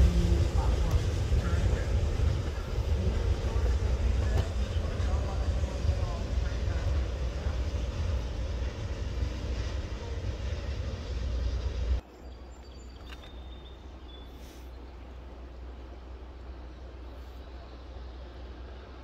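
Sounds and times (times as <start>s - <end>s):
train rumbling in motion: 0.0s - 19.0s.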